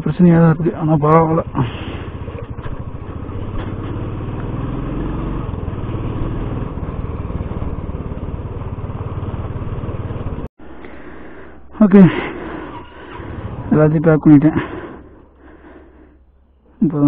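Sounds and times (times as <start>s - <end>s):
motorcycle engine running: 0.0s - 10.5s.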